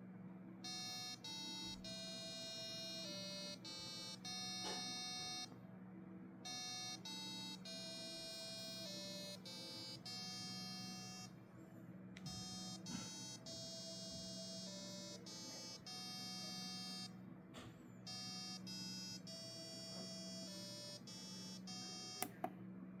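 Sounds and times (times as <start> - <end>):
sharp clicks: 22.2 - 22.5.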